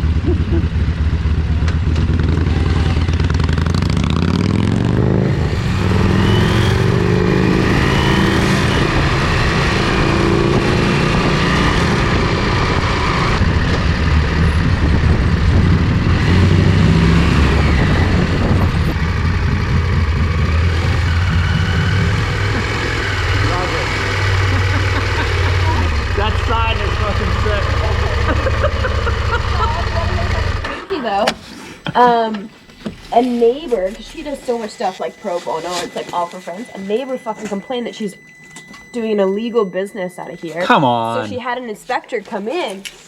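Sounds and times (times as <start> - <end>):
motorcycle engine accelerating: 0.0 - 30.9.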